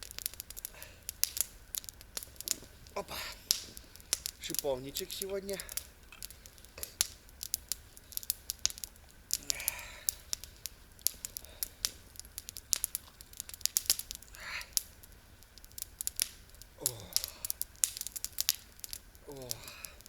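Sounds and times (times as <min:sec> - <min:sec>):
campfire crackling: 0:00.0 - 0:20.0
soft rustle: 0:00.4 - 0:07.0.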